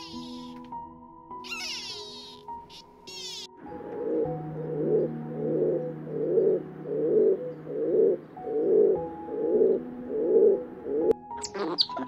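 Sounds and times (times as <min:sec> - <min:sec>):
bird cooing: 0:03.7 - 0:11.2.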